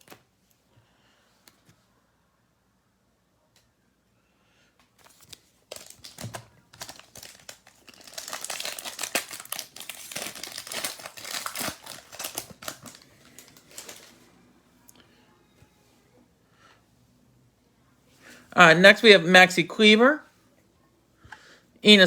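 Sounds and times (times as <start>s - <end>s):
wrapper tearing and crinkling: 5.0s - 14.2s.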